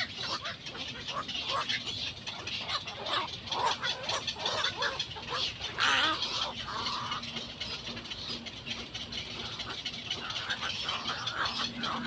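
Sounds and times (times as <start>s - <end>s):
birds squawking and clucking: 0.0s - 12.0s.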